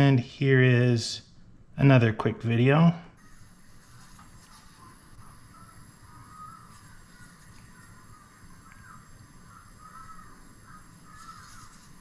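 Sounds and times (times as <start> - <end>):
low background hum: 0.0 - 12.0
faint bird chirping: 3.2 - 12.0.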